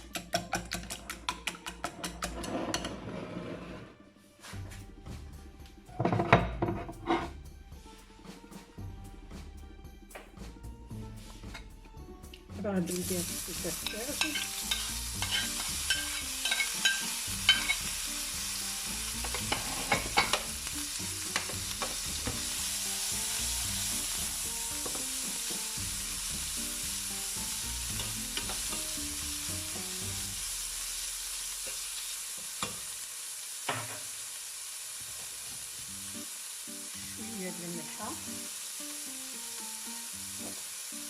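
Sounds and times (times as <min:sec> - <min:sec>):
utensil clicking against pan: 0:00.0 - 0:02.5
food sizzling in oil: 0:12.6 - 0:41.0.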